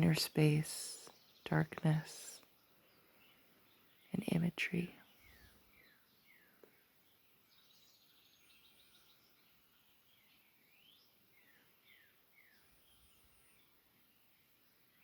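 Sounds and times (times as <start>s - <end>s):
bird chirping: 0.0s - 15.0s
soft background hiss: 0.0s - 15.0s.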